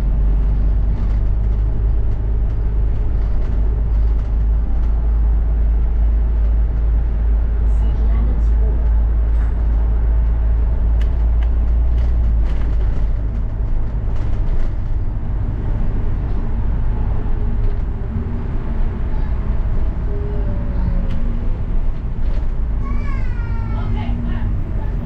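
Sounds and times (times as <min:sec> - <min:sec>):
bus engine and road rumble: 0:00.0 - 0:25.0
small rattles and clicks: 0:00.9 - 0:05.0, 0:08.8 - 0:15.1.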